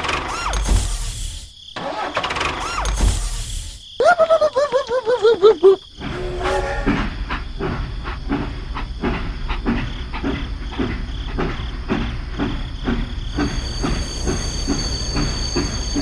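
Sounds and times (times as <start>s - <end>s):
toy steam train chugging: 6.2s - 16.0s.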